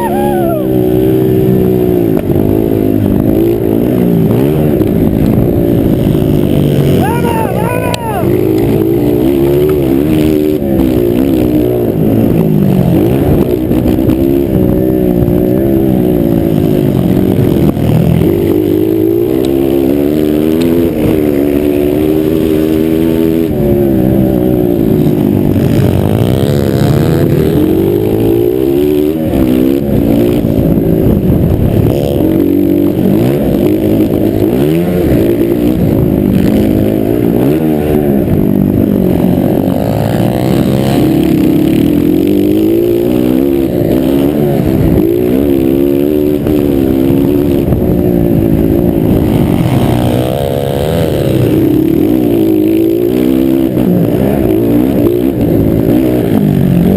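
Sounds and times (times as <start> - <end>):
motocross bikes revving: 0.0 - 56.9.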